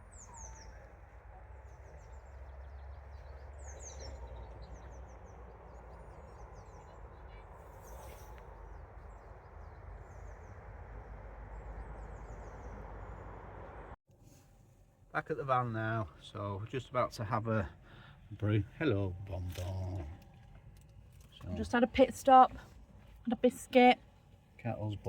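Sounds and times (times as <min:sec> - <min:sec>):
small songbirds chirping: 0:00.0 - 0:13.9.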